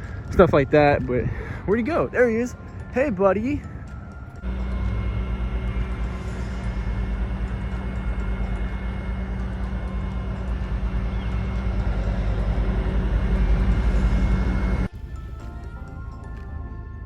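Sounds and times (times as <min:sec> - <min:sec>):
constant rumble: 0:00.0 - 0:16.2
vehicle engine hum: 0:03.8 - 0:14.9.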